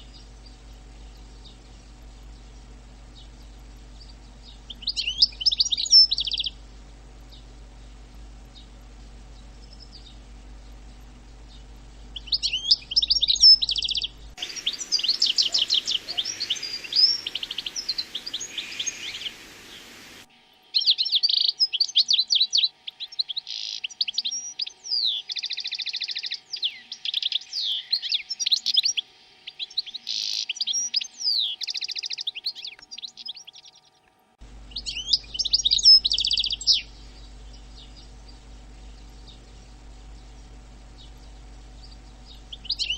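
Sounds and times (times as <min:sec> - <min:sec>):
low steady hum: 0:00.0 - 0:21.8, 0:32.5 - 0:42.9
songbird chirping and warbling: 0:00.0 - 0:42.9.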